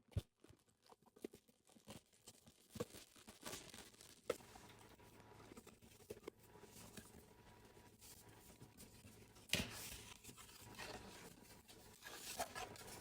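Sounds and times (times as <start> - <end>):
packaging crinkling and tearing: 0.6 - 4.9.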